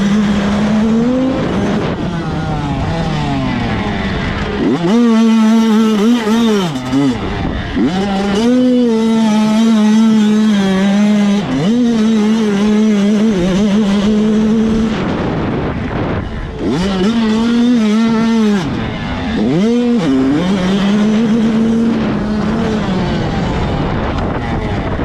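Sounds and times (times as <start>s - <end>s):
motocross bike engine revving: 0.0s - 15.2s, 16.4s - 23.9s.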